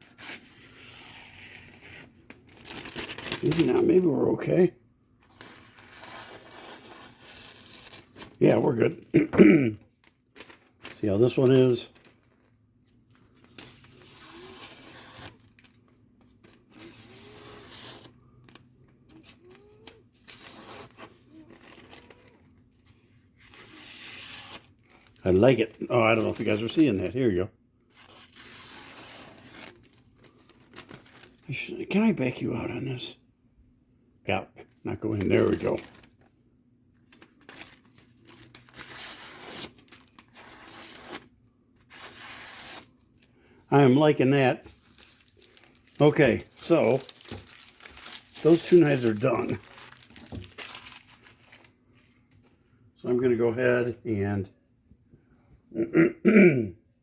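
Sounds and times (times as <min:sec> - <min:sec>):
knife slicing through paper: 0:13.5 - 0:15.5, 0:38.3 - 0:42.9.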